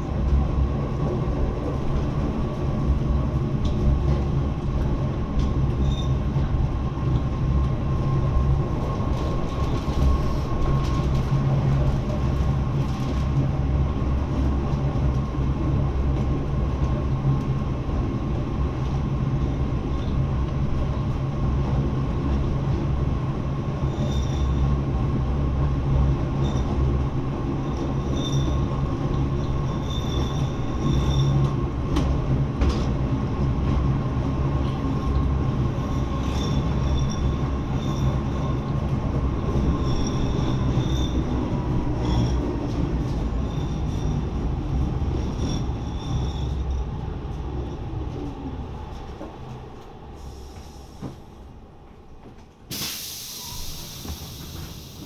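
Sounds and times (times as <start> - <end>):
train low rumble: 0.0 - 55.0
high wheel squeals: 39.6 - 44.4, 45.2 - 46.8.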